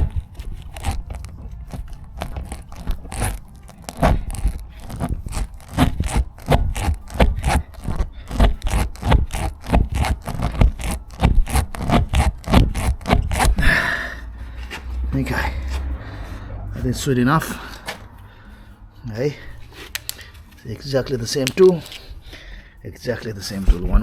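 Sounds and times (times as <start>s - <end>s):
rasp tool scraping in tyre: 0.0s - 16.3s.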